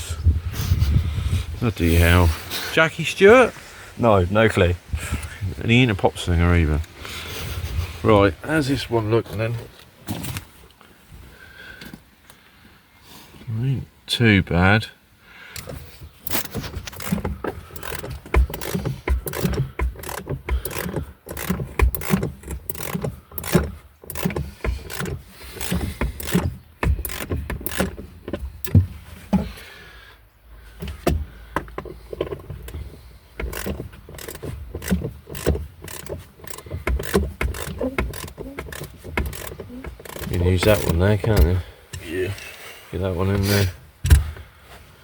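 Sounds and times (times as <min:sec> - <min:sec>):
socket ratchet clicking: 0:16.3 - 0:28.8, 0:33.4 - 0:41.5.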